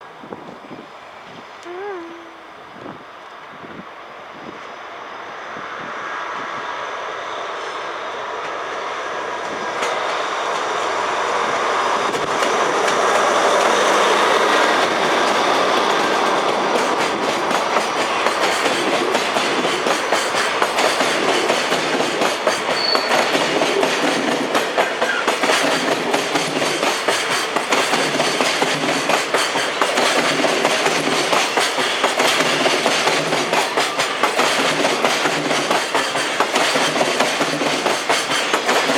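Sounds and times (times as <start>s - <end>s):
freight train wheels clicking: 7.5s - 38.9s.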